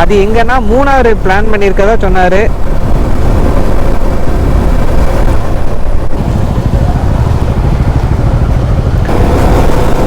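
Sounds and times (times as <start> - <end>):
motorcycle engine running: 0.0 - 10.0
wind buffeting microphone: 0.0 - 10.0.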